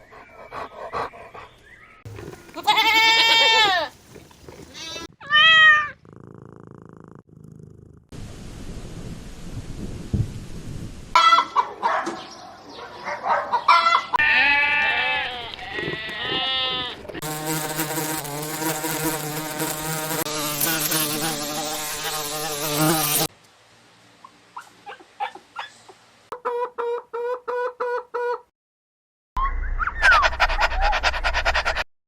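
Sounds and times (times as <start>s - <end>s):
farm animal calls: 29.4s - 31.8s.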